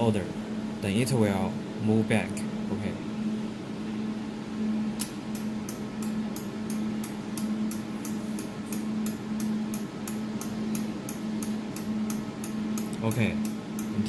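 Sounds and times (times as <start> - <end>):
steady machine hum: 0.0 - 14.0.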